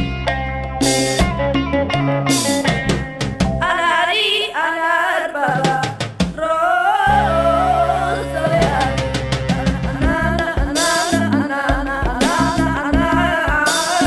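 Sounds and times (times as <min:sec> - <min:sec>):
song with percussive beats: 0:00.0 - 0:03.8, 0:05.5 - 0:06.5, 0:08.5 - 0:14.0
singing voice with vibrato: 0:03.6 - 0:14.0.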